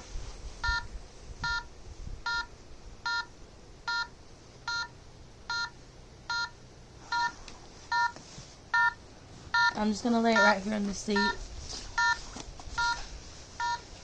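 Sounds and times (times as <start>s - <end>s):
electronic app beeps: 11.2s - 11.4s, 12.0s - 12.2s.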